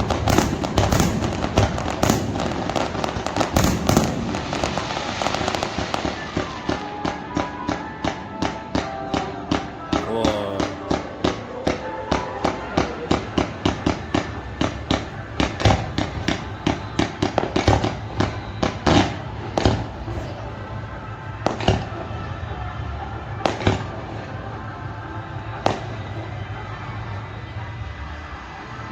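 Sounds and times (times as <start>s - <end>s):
fireworks bursting: 0.0s - 8.6s.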